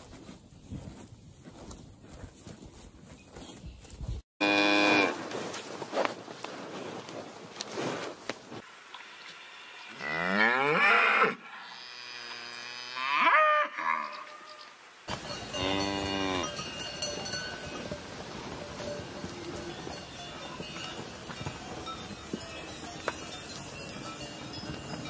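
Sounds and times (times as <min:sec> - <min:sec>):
cows mooing: 0:09.9 - 0:14.4, 0:15.4 - 0:16.8.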